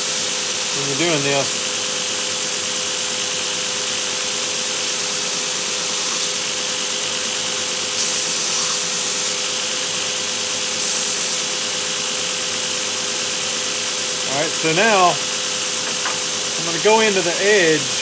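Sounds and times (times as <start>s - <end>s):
belt sander humming: 0.0s - 1.7s, 13.0s - 18.0s
wood grinding on sander belt: 0.0s - 1.7s, 13.8s - 18.0s.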